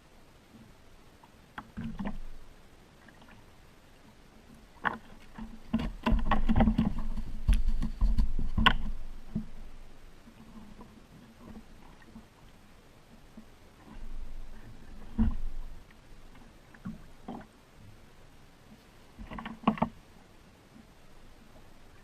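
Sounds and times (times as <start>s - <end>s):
paddling water sounds: 0.0s - 22.0s
kayak paddle knocks: 4.8s - 9.6s.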